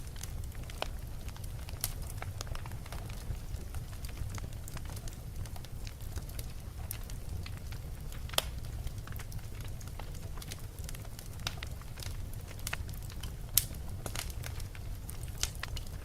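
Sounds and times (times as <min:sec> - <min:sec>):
fire crackling and popping: 0:00.0 - 0:16.0
fire rumbling: 0:00.0 - 0:16.0.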